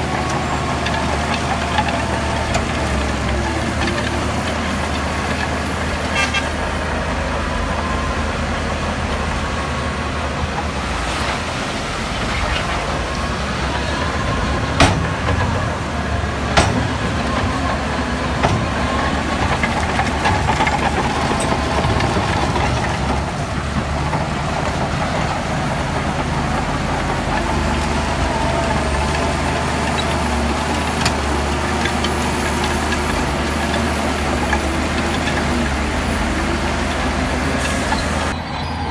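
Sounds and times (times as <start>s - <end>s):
heavy machinery diesel engine: 0.0s - 38.9s
sharp metallic knocks: 14.7s - 15.7s, 16.5s - 17.7s.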